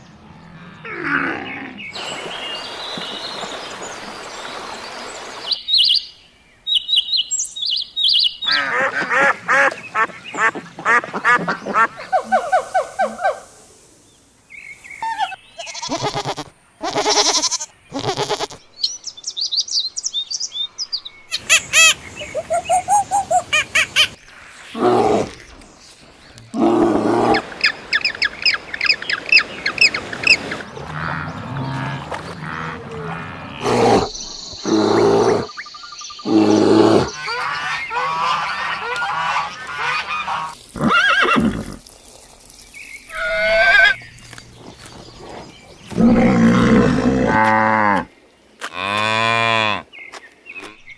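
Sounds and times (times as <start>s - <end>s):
bird calls: 14.6s - 24.4s.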